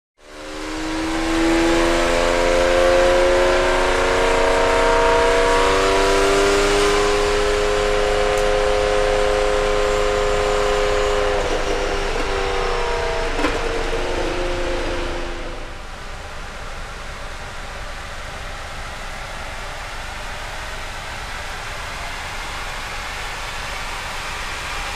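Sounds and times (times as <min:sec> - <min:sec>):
diesel engine pulling under load: 0:09.8 - 0:16.4.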